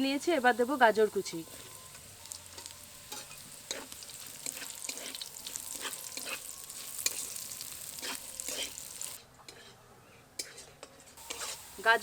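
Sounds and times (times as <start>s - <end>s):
vegetables sizzling in oil: 0.0s - 9.2s, 11.2s - 12.0s
sharp scrapes against pan: 3.1s - 7.4s, 8.0s - 9.8s, 10.4s - 11.7s.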